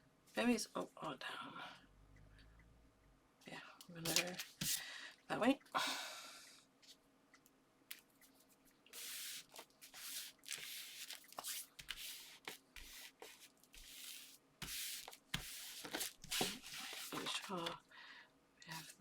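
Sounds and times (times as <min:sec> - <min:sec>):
paper and card rustling: 0:04.0 - 0:04.8, 0:08.2 - 0:17.8, 0:18.7 - 0:19.0.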